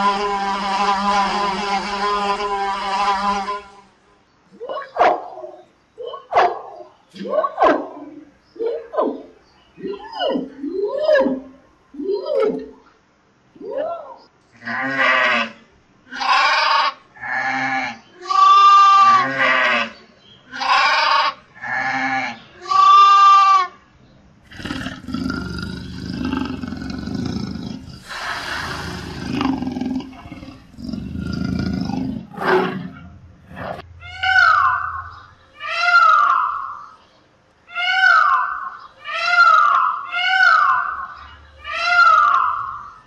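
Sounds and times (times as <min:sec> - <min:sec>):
leopard rasping calls: 0:24.5 - 0:37.0, 0:37.7 - 0:43.0
peafowl call: 0:34.0 - 0:37.1, 0:37.7 - 0:43.0.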